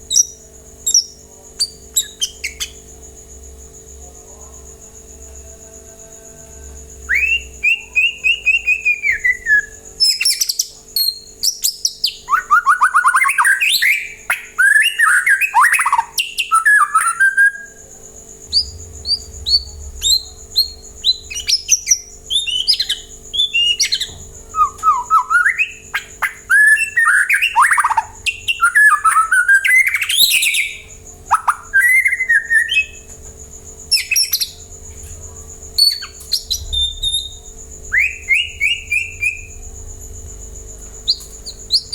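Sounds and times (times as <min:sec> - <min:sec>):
songbird singing whistles: 0:00.1 - 0:02.8, 0:07.0 - 0:17.8, 0:18.5 - 0:33.1, 0:33.9 - 0:34.6, 0:35.8 - 0:39.6, 0:41.0 - 0:41.9.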